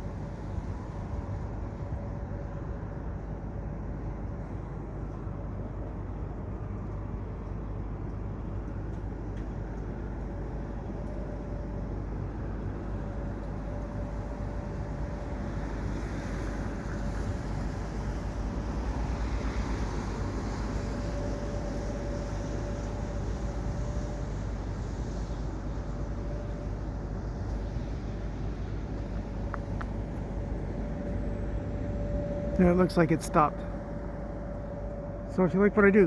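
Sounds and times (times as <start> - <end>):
freight train rumble: 0.0 - 36.0
steady whine: 24.4 - 36.0.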